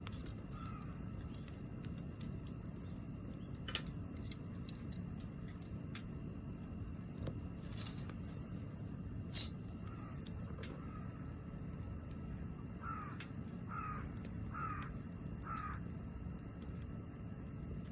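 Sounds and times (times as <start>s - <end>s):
bonfire crackling and popping: 0.0s - 17.9s
low rush of fire: 0.0s - 17.9s.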